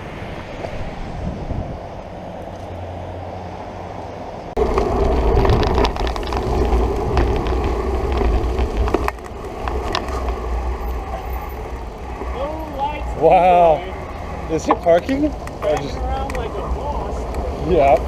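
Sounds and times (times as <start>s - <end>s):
bicycle rattling: 4.6s - 18.0s
bicycle tyres rumbling: 4.6s - 18.0s.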